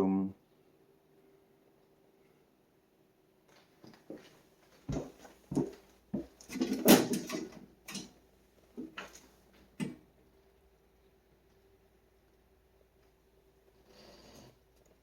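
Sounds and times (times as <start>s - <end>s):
sharp knocks and thumps: 4.9s - 9.2s
rattling clatter: 6.4s - 8.2s.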